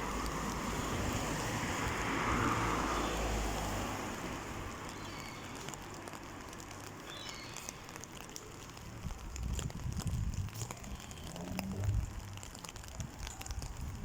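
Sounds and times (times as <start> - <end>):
heavy rain falling: 0.0 - 14.0
raindrops clicking on umbrella: 0.0 - 14.0
wind gust on microphone: 8.9 - 14.0.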